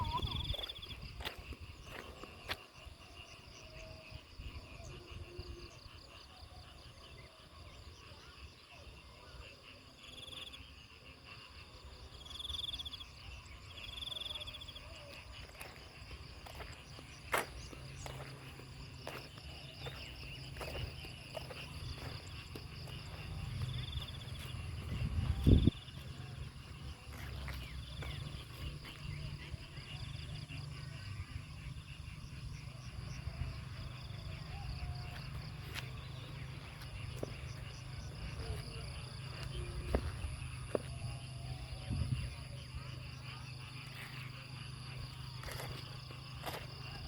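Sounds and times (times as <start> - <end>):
insects chirping: 0.0 - 47.0.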